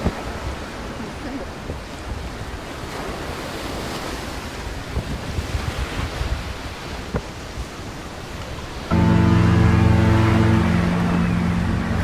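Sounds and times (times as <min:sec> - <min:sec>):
wind buffeting microphone: 0:04.0 - 0:08.7.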